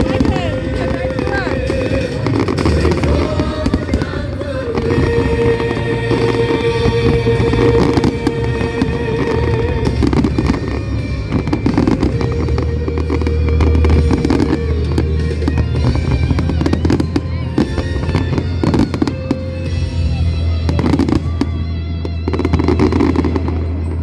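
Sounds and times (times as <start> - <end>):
deep fireworks booms: 0.0 - 24.0
fireworks bursting and crackling: 0.0 - 24.0
loud music: 0.0 - 24.0.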